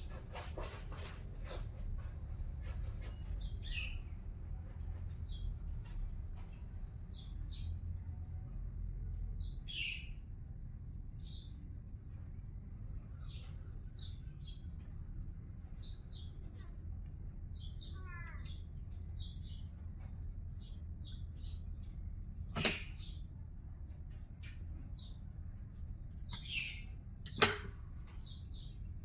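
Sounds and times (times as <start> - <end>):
low background rumble: 0.0 - 29.0
small birds chirping: 0.0 - 29.0.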